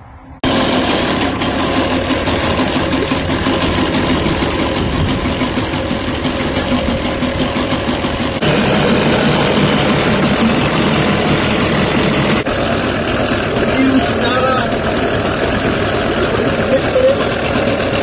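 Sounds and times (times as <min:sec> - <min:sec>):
boat motor running: 0:00.4 - 0:18.0.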